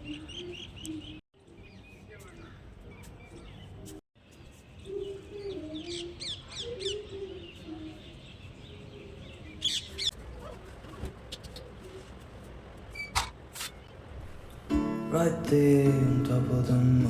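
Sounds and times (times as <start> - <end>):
birds chirping: 14.2 - 14.8.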